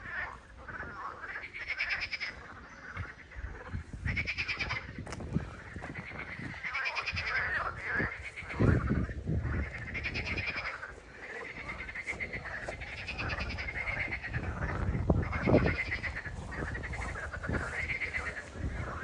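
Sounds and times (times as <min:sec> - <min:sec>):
animal high quavering calls: 0:00.0 - 0:19.0.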